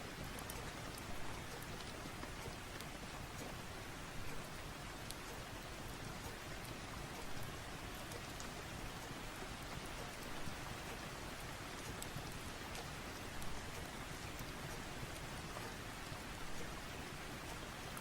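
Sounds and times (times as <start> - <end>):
faint ticks: 0.1 - 18.0.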